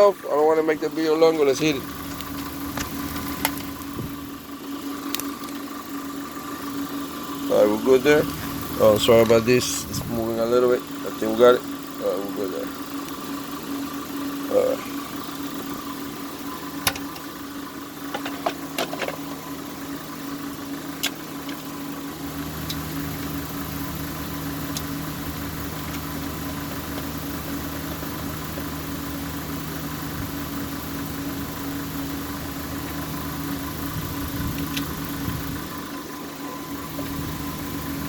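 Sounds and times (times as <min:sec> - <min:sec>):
lower hum: 0:00.0 - 0:38.0
steady machine hum: 0:00.0 - 0:38.0.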